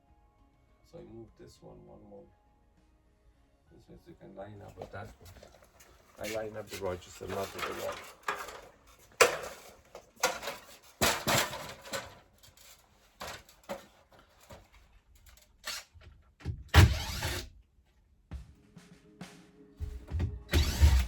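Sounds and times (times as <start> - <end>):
knocks and scrapes: 4.7 - 14.9.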